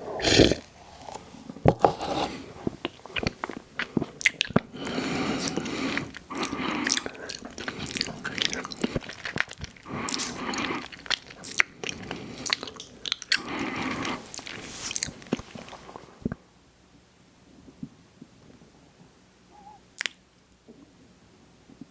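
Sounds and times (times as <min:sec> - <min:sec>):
crunchy chewing: 0:01.8 - 0:16.0
mouth clicks: 0:03.2 - 0:15.2, 0:19.6 - 0:20.2.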